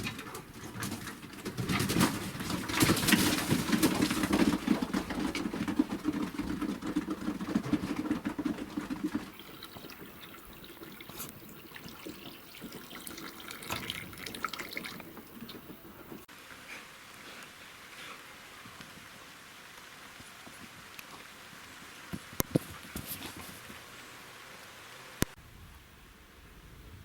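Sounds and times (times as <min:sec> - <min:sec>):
faint drips and ticks: 0:05.4 - 0:16.3, 0:18.6 - 0:24.0
water pouring: 0:09.3 - 0:16.2.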